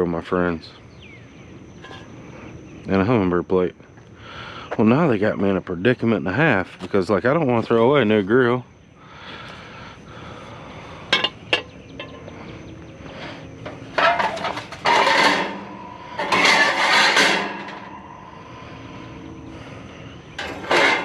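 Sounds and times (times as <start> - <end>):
junk rattling and scraping: 1.7 - 2.2, 11.0 - 21.0
junk clattering: 11.1 - 12.3, 13.4 - 18.6, 20.2 - 21.0.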